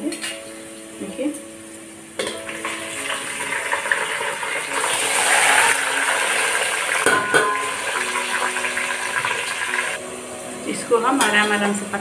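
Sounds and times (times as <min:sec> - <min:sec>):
chicken sizzling in hot oil: 0:02.1 - 0:10.0
sharp knock against pot: 0:07.1 - 0:07.6.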